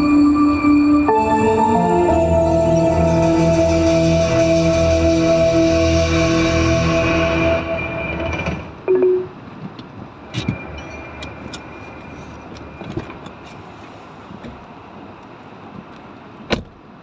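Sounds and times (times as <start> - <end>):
music in car: 0.0 - 8.2.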